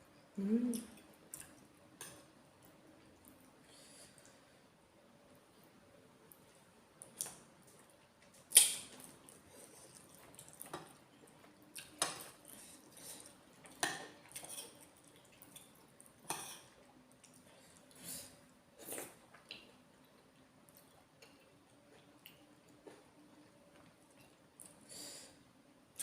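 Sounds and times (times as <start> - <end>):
cutlery clinking on dishes: 16.3 - 16.7.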